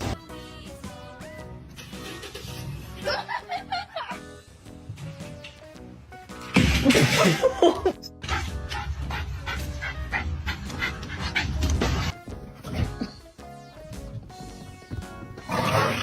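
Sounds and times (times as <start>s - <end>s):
background music with steady beat: 0.0s - 16.0s.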